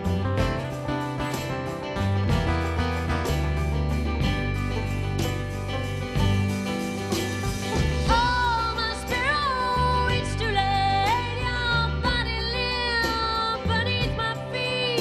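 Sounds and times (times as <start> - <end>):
bass notes: 0.0 - 15.0
guitar: 0.0 - 15.0
woman singing wordless notes: 8.1 - 15.0.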